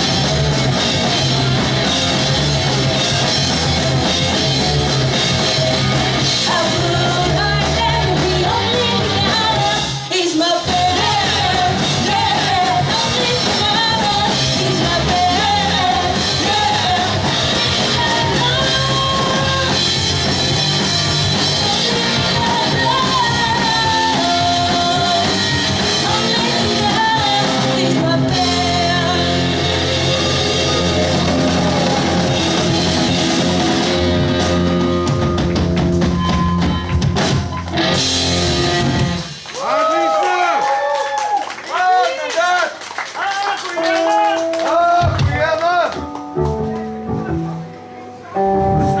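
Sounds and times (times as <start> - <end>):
pop-punk band playing live: 0.0 - 39.6, 43.6 - 49.0
person singing: 6.4 - 33.1.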